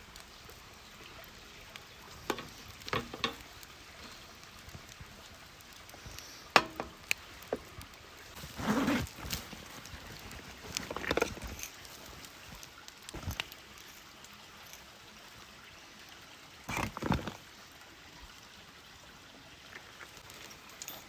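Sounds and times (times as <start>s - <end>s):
steak sizzling on a grill: 0.0s - 8.5s
rustling scrape: 8.3s - 12.6s.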